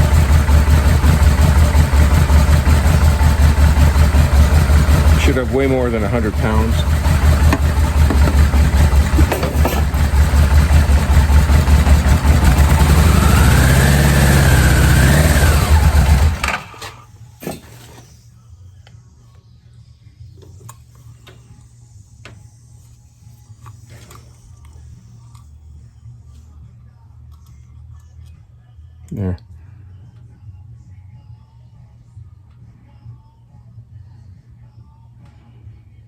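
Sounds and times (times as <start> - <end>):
engine cranking on starter: 0.0 - 18.1.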